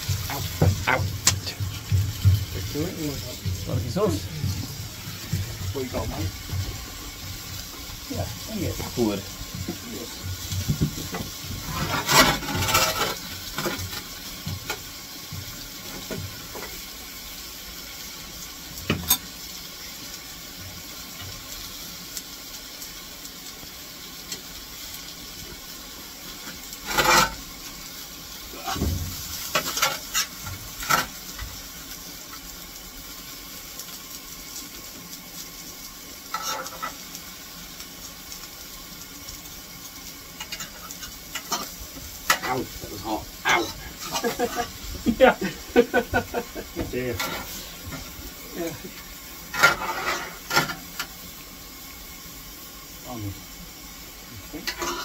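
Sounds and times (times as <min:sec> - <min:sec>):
vegetables sizzling on a shovel: 0:00.0 - 0:55.0
fork scraping metal shovel: 0:11.7 - 0:13.3, 0:26.8 - 0:27.4, 0:49.5 - 0:51.1, 0:54.6 - 0:55.0.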